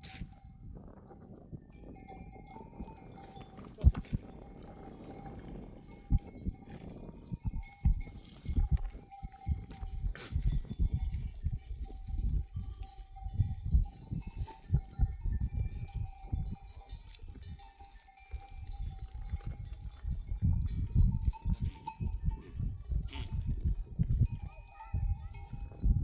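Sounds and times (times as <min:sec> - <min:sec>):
sheep bells ringing: 0:00.0 - 0:26.0
low thuds and rumbles: 0:02.6 - 0:16.6.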